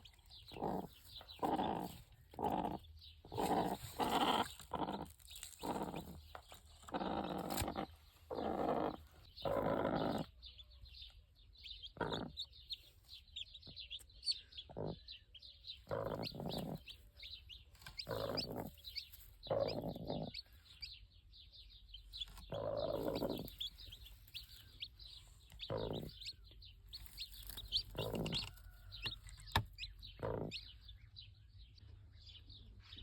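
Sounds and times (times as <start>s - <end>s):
farm animals calling harshly: 0.0s - 10.5s, 11.9s - 12.7s, 14.3s - 21.0s, 22.2s - 31.1s
small birds chirping: 0.0s - 33.0s.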